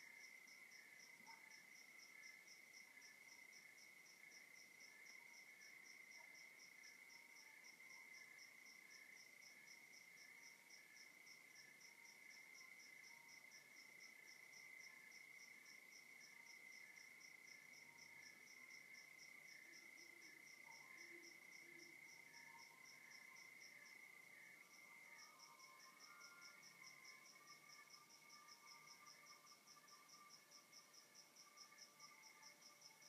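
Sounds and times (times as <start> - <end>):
insect chirping in a pulse: 0.0 - 33.0
crickets trilling: 11.0 - 33.0.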